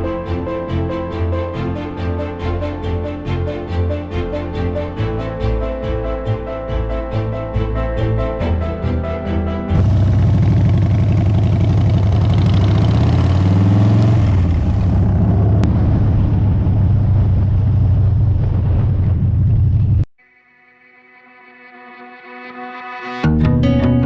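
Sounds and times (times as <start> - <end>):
motorcycle engine running: 9.8 - 18.3.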